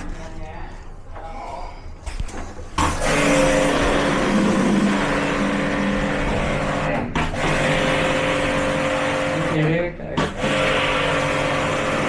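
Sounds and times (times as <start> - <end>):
power tool motor running: 2.8 - 12.0.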